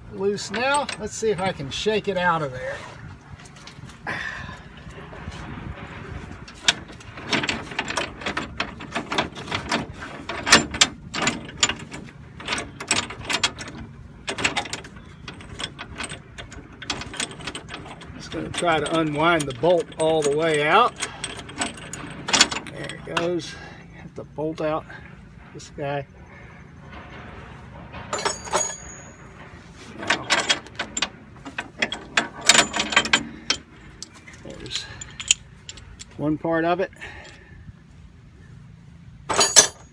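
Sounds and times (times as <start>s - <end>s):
spring compressor clanking and rattling: 0.0s - 36.4s, 39.2s - 39.9s
sharp metal knocks: 26.9s - 34.1s, 39.3s - 39.9s.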